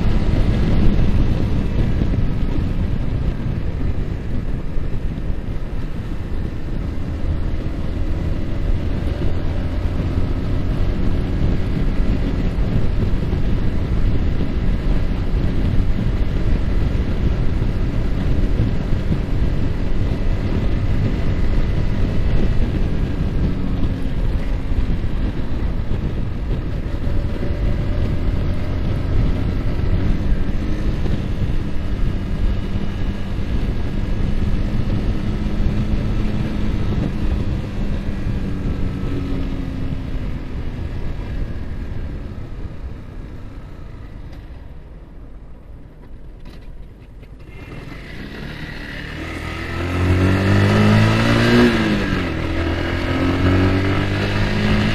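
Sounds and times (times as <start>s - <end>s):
motorcycle engine running: 0.0s - 54.9s
wind rumble on microphone: 0.0s - 54.9s.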